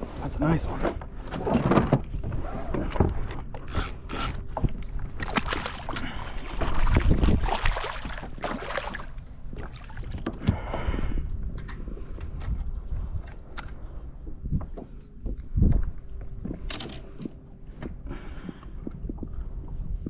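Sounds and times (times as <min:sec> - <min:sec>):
water splashing: 0:05.1 - 0:10.2.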